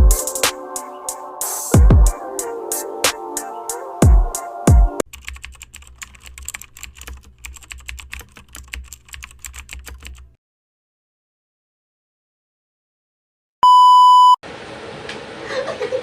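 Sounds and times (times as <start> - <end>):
electronic music with deep bass: 0.0 - 5.0
computer keyboard typing: 5.0 - 10.3.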